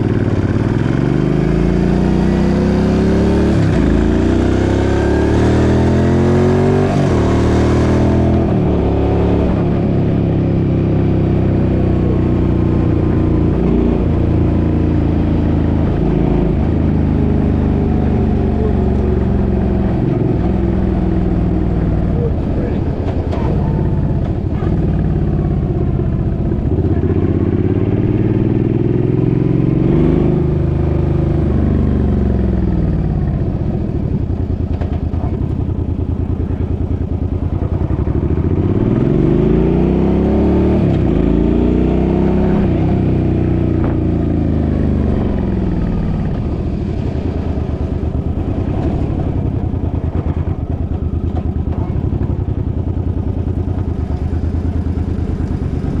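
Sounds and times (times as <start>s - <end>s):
engine speeding up and slowing: 0.0s - 35.6s, 37.5s - 52.6s, 53.3s - 56.0s
steady low rumble: 7.9s - 28.6s, 40.8s - 56.0s.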